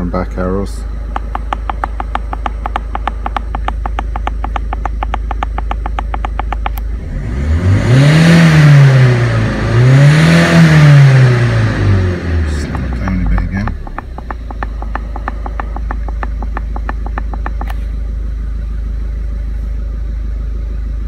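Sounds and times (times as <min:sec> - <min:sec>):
turbocharged car engine revving: 0:00.8 - 0:17.8
light engine ticking: 0:01.1 - 0:06.8, 0:12.5 - 0:17.8.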